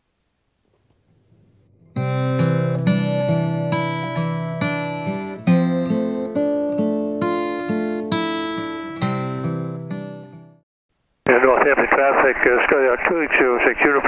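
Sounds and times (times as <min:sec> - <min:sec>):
acoustic guitar chords: 0:01.7 - 0:10.6.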